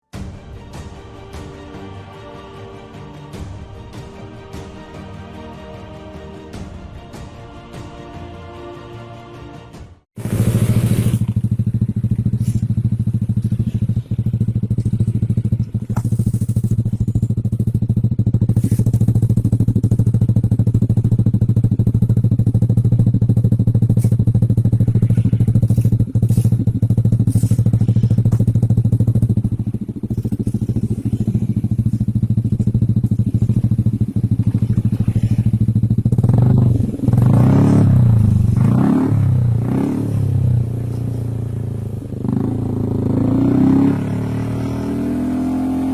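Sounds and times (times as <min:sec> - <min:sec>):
scooter engine idling and revving: 0:10.1 - 0:45.9.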